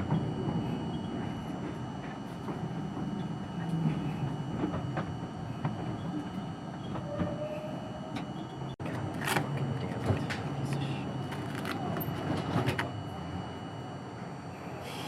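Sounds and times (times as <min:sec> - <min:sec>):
subway car rumble: 0:00.0 - 0:15.0.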